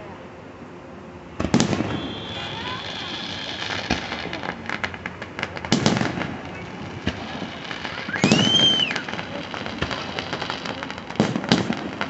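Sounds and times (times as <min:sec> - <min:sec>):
firework whistle: 0:01.4 - 0:04.9, 0:05.8 - 0:11.8
firework shells bursting: 0:01.4 - 0:12.0
fireworks crackling: 0:01.4 - 0:12.0.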